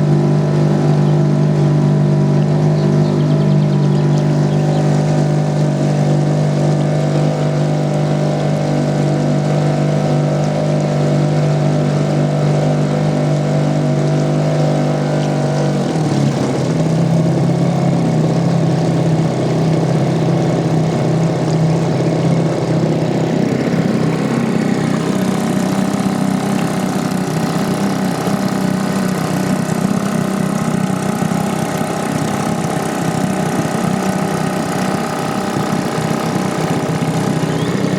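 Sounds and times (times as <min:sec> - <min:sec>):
outboard motor running: 0:00.0 - 0:37.9.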